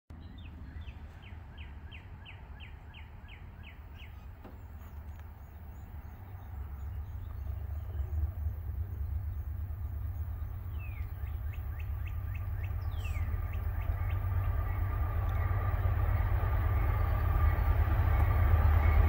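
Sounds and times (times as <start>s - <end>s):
songbird singing: 0.1s - 19.0s
low rumble: 3.6s - 19.0s
high bird chirps: 9.0s - 15.9s.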